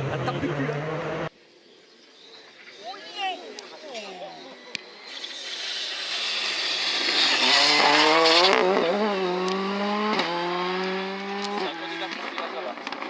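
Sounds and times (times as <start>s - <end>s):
car engine revving with gear changes: 0.0s - 1.3s, 7.0s - 13.0s.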